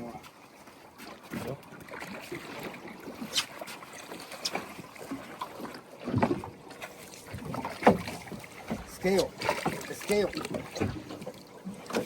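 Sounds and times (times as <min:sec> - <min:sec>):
water noise: 0:00.0 - 0:12.0
wind: 0:00.0 - 0:12.0
knocks and bumps on boat: 0:04.4 - 0:12.0.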